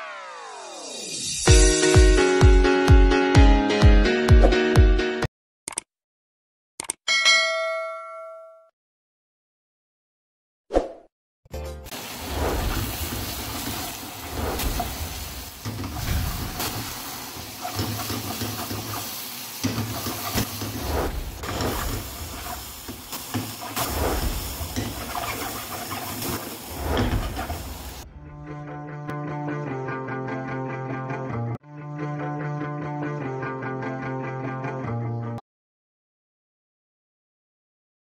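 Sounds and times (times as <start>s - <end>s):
music: 0.0s - 5.3s, 11.5s - 12.0s, 28.0s - 35.4s
food sizzling in hot oil: 11.9s - 28.0s.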